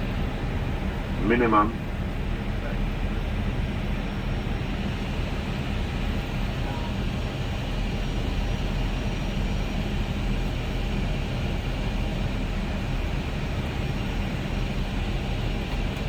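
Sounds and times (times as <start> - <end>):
cockpit airflow and engine noise: 0.0 - 16.0.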